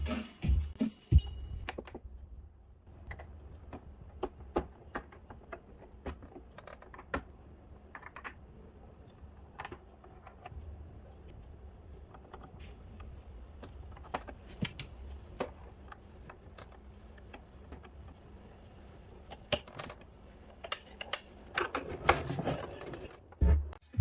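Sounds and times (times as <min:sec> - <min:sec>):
electronic music with heavy beat: 0:00.0 - 0:01.6.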